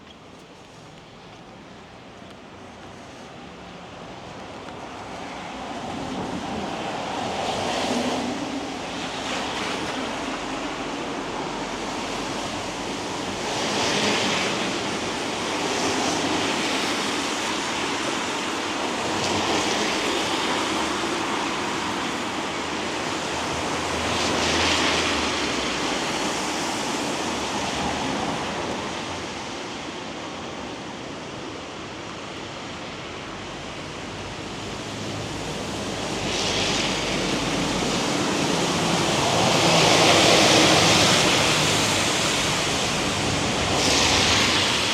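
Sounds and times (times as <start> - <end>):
car tyres swishing on wet road: 2.6 - 30.5, 32.3 - 44.9.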